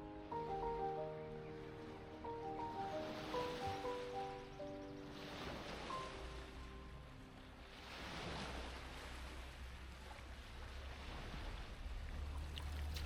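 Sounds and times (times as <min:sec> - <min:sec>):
background music: 0:00.0 - 0:08.6
sea water washing: 0:07.3 - 0:13.0
wind rumble on microphone: 0:07.9 - 0:13.0.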